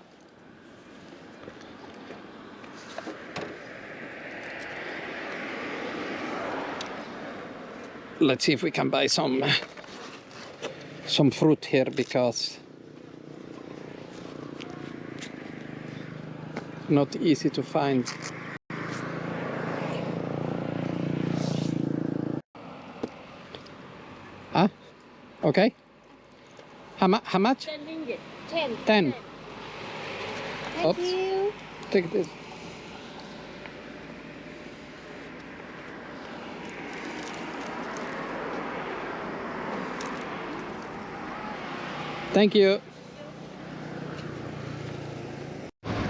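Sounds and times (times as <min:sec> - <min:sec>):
vehicle passing by: 0:00.0 - 0:11.8, 0:12.4 - 0:25.0, 0:26.8 - 0:46.0
traffic background: 0:00.0 - 0:46.0.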